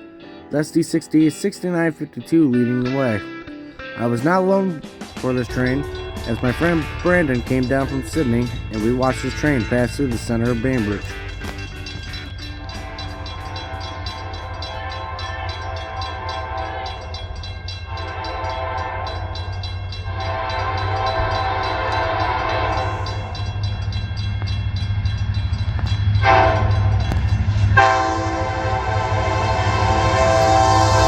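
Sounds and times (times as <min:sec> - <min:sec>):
diesel engines rumbling: 0:03.8 - 0:31.0
locomotive horn blasts: 0:12.4 - 0:23.4, 0:26.2 - 0:27.2, 0:27.8 - 0:31.0.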